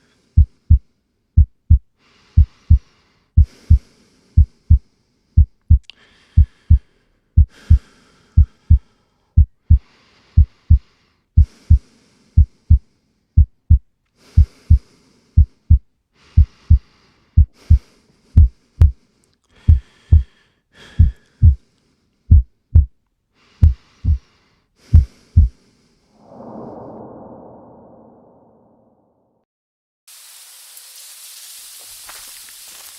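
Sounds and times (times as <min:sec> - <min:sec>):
heartbeat double thumps: 0:00.4 - 0:00.8, 0:01.4 - 0:02.8, 0:07.4 - 0:07.8, 0:09.4 - 0:09.8, 0:13.4 - 0:13.8, 0:17.4 - 0:17.8, 0:18.4 - 0:19.0, 0:21.0 - 0:21.6, 0:22.3 - 0:22.9, 0:23.6 - 0:24.2, 0:24.9 - 0:25.6.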